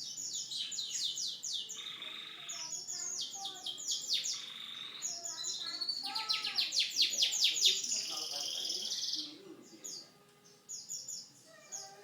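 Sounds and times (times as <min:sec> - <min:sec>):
canary singing trills: 0:00.0 - 0:12.0
harsh buzzy bird phrase: 0:01.8 - 0:10.0.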